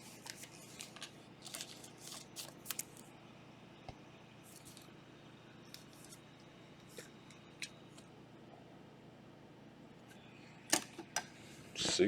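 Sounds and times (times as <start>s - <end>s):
cards rustling: 0.0s - 3.1s, 4.4s - 4.9s.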